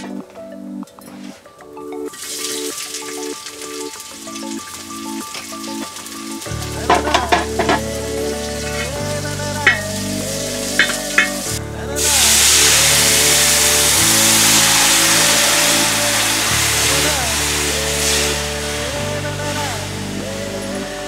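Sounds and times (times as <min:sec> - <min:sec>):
water hissing in hot pot: 0:12.0 - 0:18.9.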